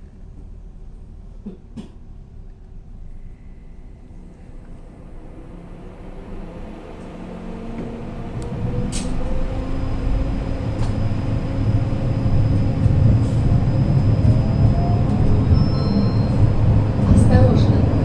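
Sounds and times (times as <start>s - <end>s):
tram wheels rumbling on rails: 0.0s - 18.0s
traction motor whine: 5.0s - 18.0s.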